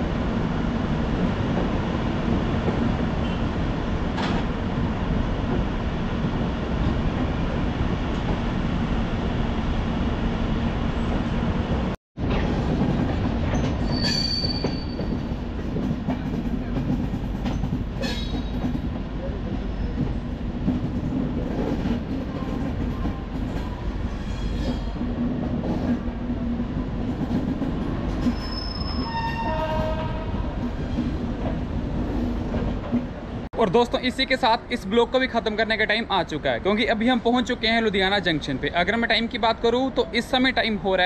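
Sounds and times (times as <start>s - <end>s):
train wheels rumbling on rails: 0.0s - 9.5s, 10.7s - 41.0s
high wheel squeal: 13.8s - 15.1s, 24.1s - 25.0s, 28.3s - 30.0s.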